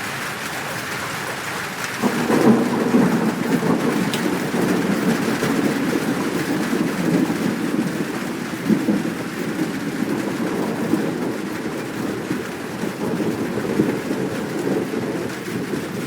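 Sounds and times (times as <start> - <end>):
heavy rain: 0.0 - 16.0
thunder rumbling: 0.0 - 16.0.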